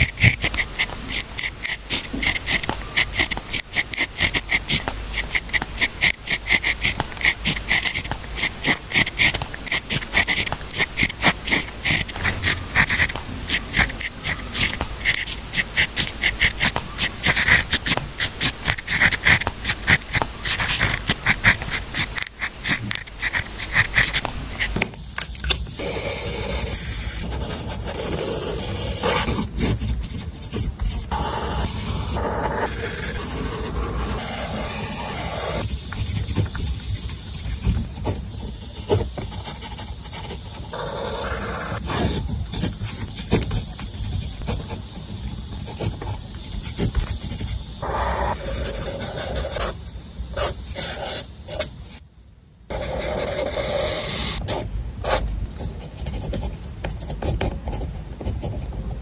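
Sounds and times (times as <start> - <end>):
pen scratching on paper: 0.0 - 24.8, 52.7 - 58.6.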